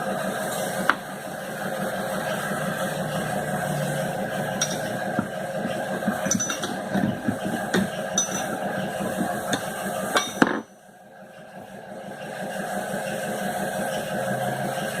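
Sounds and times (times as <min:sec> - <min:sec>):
sewing machine motor humming: 0:00.8 - 0:10.2
metallic clinks and knocks: 0:06.2 - 0:06.8, 0:07.7 - 0:08.5.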